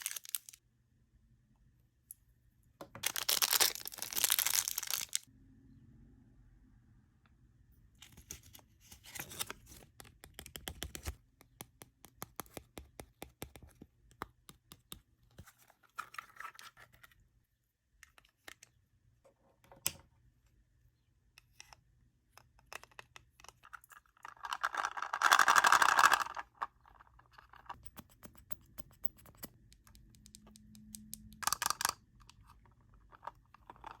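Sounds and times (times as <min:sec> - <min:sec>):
packaging rustling: 0:00.0 - 0:00.6
plastic toy pieces clicking: 0:29.8 - 0:32.4.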